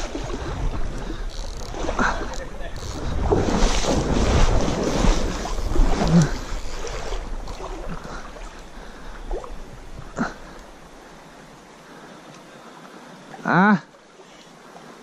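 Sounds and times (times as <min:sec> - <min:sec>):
wind on microphone: 0:00.0 - 0:10.8
moving water hiss: 0:00.0 - 0:15.0.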